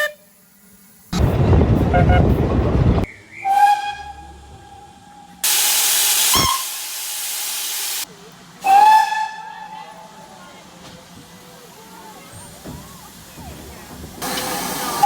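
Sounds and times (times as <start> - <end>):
steam locomotive whistle blasts: 5.4 - 8.0, 8.6 - 9.7
hiss of escaping steam: 5.4 - 8.1, 14.0 - 15.0.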